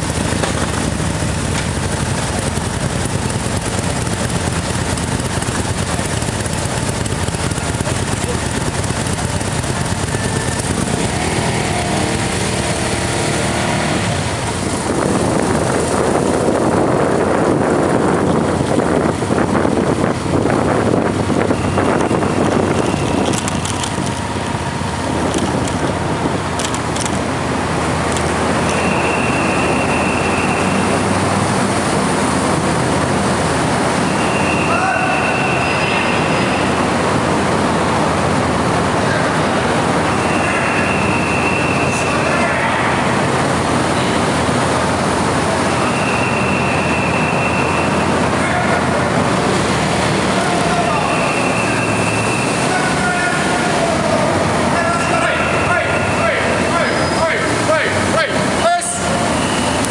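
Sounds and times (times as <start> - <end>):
motorcycle and vehicle engines: 0.0 - 59.9
long high beeps: 58.6 - 59.9.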